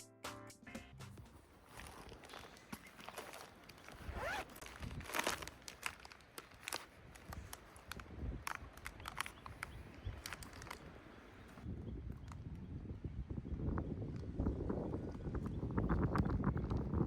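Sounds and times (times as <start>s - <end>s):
rustling and crinkling: 1.2s - 12.5s.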